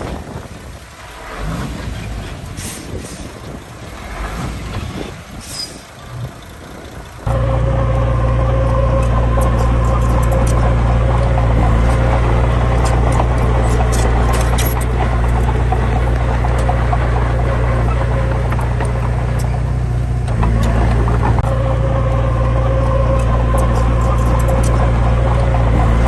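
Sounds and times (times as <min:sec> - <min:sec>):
heavy diesel engine running: 0:00.0 - 0:26.0
clicks and rattles: 0:09.0 - 0:21.5.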